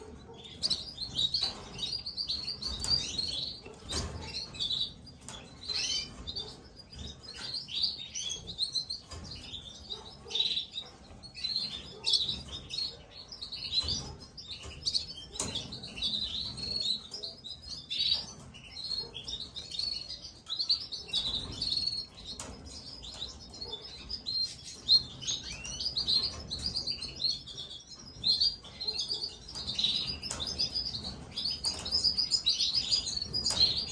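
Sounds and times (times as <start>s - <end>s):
chicks chirping: 0.0s - 33.9s.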